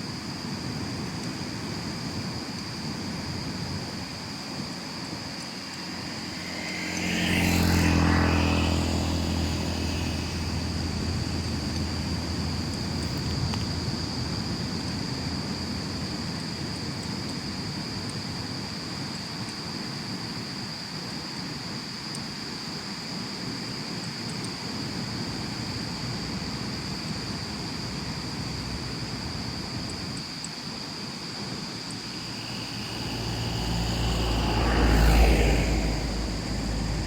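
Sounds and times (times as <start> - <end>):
vehicle passing by: 4.8 - 16.8, 31.9 - 37.0
thin high steady tone: 31.9 - 37.0
background hiss: 32.0 - 37.0.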